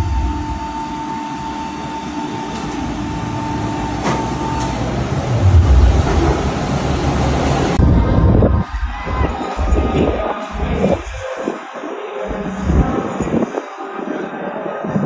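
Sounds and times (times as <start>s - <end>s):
racing car engines rumbling: 2.5s - 7.9s.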